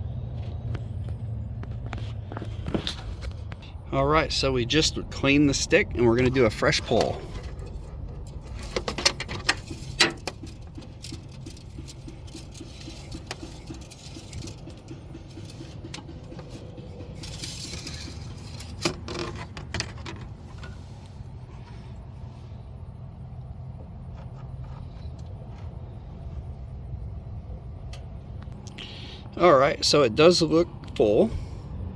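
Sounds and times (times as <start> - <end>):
low hum: 0.0 - 24.0
dipstick clicking and scraping: 6.0 - 21.9.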